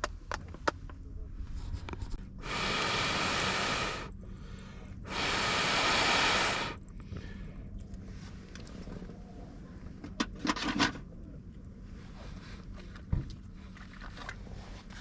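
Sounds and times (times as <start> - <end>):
long hissing rushes: 2.4 - 4.1, 5.0 - 6.8.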